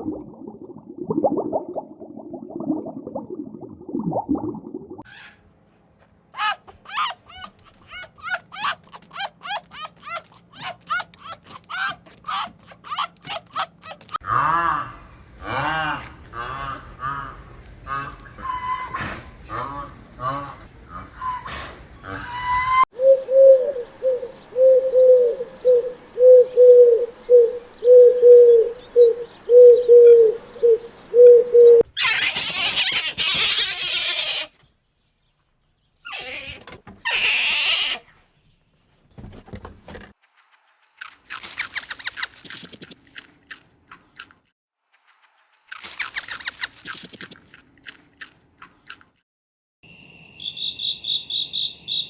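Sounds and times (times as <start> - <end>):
raspy clicking sounds: 45.8 - 47.6.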